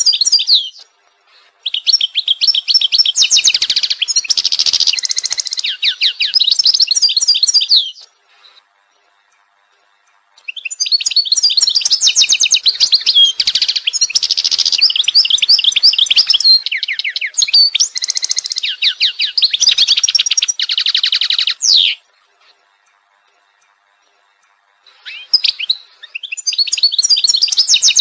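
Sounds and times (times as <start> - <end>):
songbird singing: 0.0 - 28.0.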